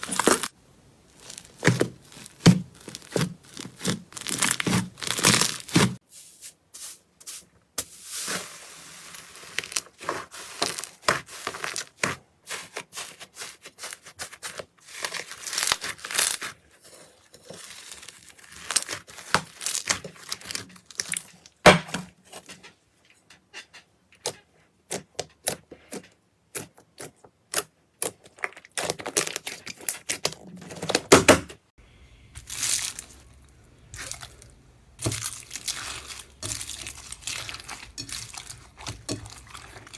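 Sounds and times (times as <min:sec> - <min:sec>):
slime crackling and popping: 0:00.0 - 0:06.0, 0:14.9 - 0:16.6, 0:17.5 - 0:21.5, 0:32.4 - 0:33.4, 0:34.0 - 0:39.9.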